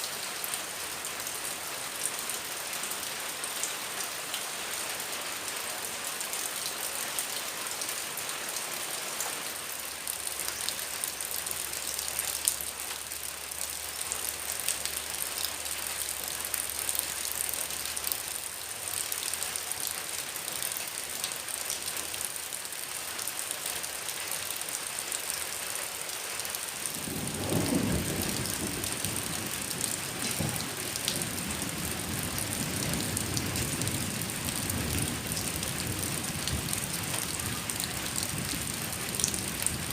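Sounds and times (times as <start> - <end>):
heavy rain pattering: 0.0 - 39.9
rolling thunder: 26.9 - 39.9.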